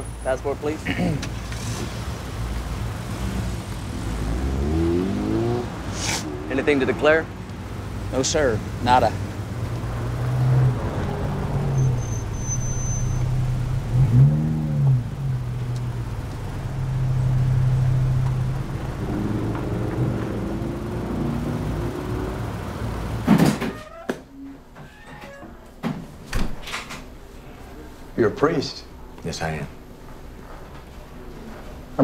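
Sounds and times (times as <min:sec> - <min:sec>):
car engine idling: 0:00.0 - 0:23.3.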